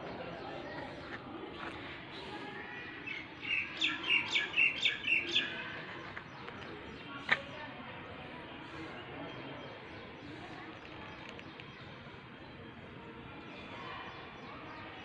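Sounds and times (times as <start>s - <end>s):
bird chirping: 3.1s - 6.6s.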